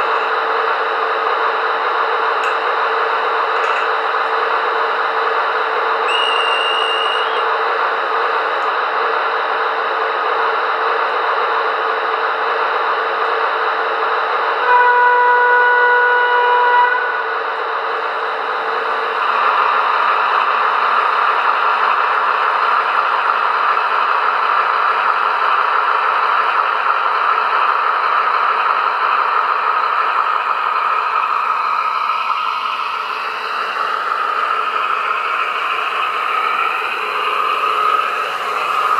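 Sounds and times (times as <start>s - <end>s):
simulated diesel engine drone: 0.0s - 38.9s
high whistle: 6.0s - 7.5s
model train horn: 6.1s - 7.4s, 14.6s - 17.3s.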